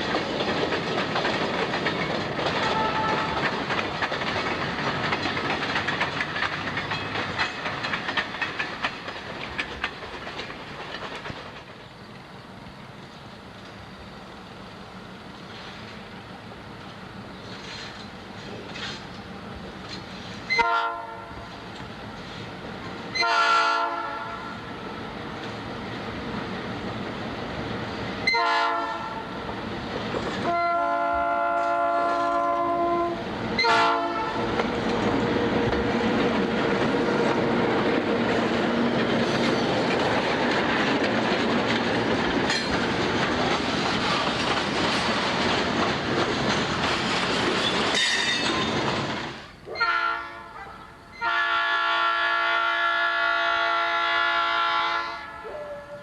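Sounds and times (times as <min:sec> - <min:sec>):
train rumble and rolling wheels: 0:00.0 - 0:56.0
locomotive air horn blasts: 0:02.6 - 0:03.4, 0:20.5 - 0:21.5, 0:23.2 - 0:24.6, 0:28.3 - 0:29.3, 0:30.4 - 0:34.4, 0:49.7 - 0:55.9.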